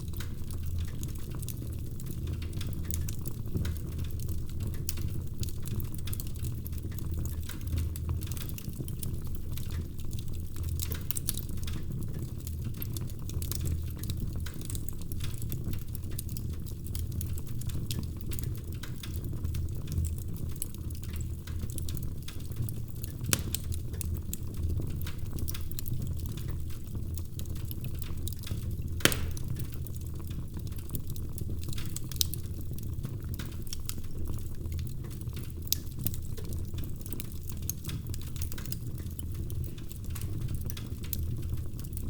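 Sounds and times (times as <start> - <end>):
wood fire crackling: 0.0 - 42.0.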